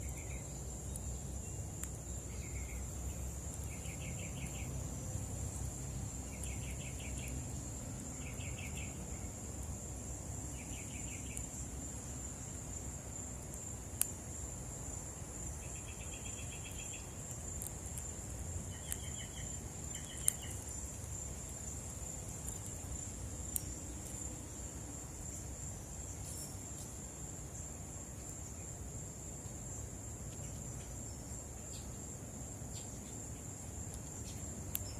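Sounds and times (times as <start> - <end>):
insects chirring: 0.0 - 34.9
trilled bird calls: 18.7 - 20.6.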